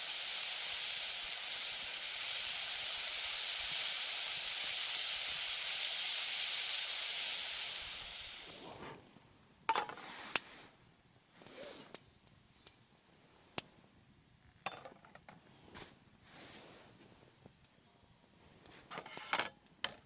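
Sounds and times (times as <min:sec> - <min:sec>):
food sizzling in a frying pan: 0:00.0 - 0:09.0.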